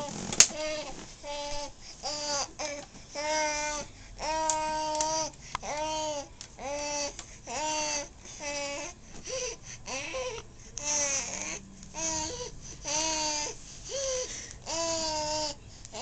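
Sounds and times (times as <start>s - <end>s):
baby babbling: 0.6s - 8.9s, 9.9s - 16.0s.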